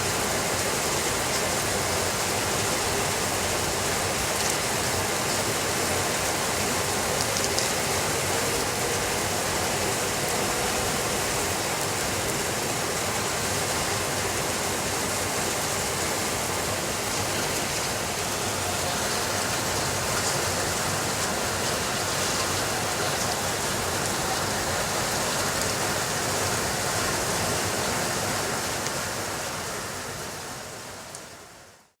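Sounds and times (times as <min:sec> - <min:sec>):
steady rain: 0:00.0 - 0:32.0.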